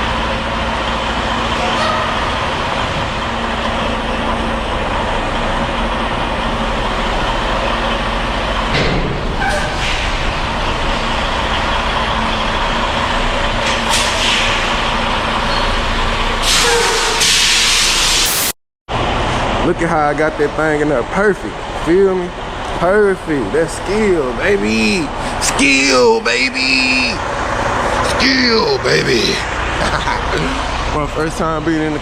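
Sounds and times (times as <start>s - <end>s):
truck engine running: 0.0s - 17.0s, 18.9s - 32.0s
air brake hiss: 13.6s - 14.8s, 16.4s - 18.5s.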